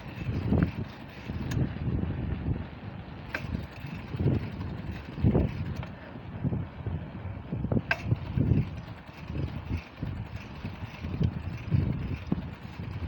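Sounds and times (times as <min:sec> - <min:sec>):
sharp clicks or rattles: 0:00.0 - 0:01.7, 0:03.3 - 0:06.0, 0:07.8 - 0:13.0
wind buffeting microphone: 0:00.0 - 0:13.0.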